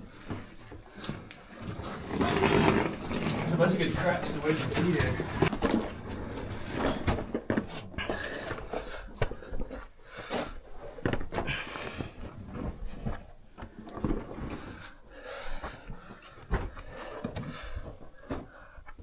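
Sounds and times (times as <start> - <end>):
scrapes on rock: 1.0 - 6.7.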